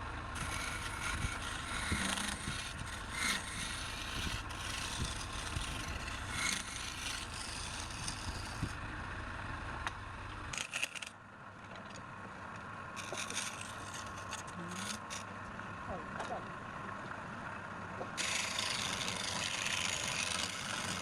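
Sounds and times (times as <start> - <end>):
lathe motor humming: 0.0 - 11.1, 17.9 - 21.0
tool scraping spinning wood: 0.0 - 11.2, 12.9 - 16.4, 18.0 - 21.0.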